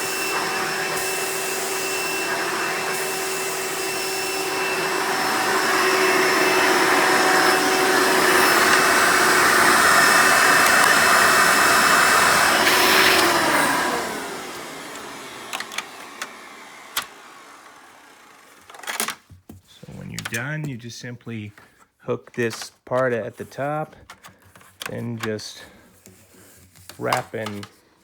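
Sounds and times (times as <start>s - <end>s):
vacuum cleaner motor running: 0.0s - 19.0s.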